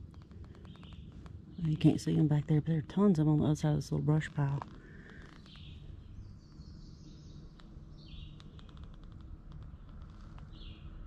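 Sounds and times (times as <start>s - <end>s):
faint ticks: 7.5s - 10.6s.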